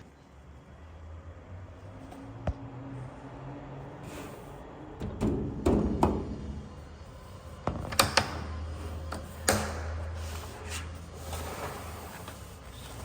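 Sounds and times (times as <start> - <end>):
sharp knocks and clicks: 5.0 - 6.6.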